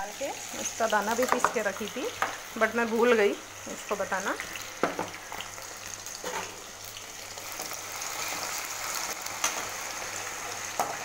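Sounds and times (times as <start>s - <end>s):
potatoes sizzling in hot oil: 0.0s - 11.0s
spoon knocking on pan: 1.2s - 1.6s, 4.8s - 5.2s.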